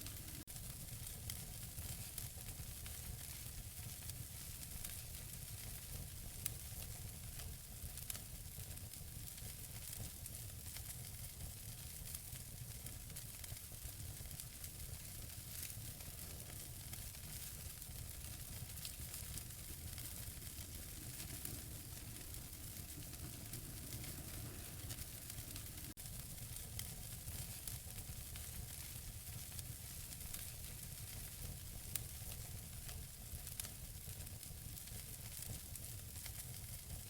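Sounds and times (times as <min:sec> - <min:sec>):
wood fire hissing and crackling: 0:00.0 - 0:37.0.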